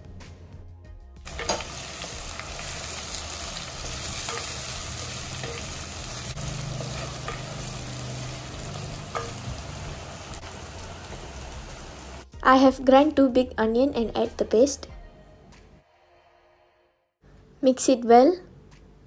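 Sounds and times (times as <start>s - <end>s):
oil sizzling in a pan: 1.3s - 12.3s.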